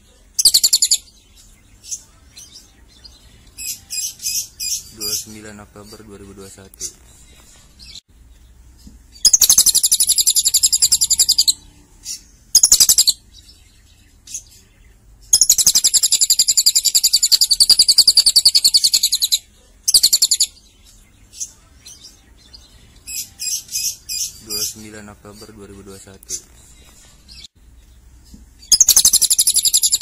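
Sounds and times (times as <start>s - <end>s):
lovebird trilling: 0.4s - 1.1s, 9.2s - 13.2s, 15.3s - 20.6s, 28.6s - 30.0s.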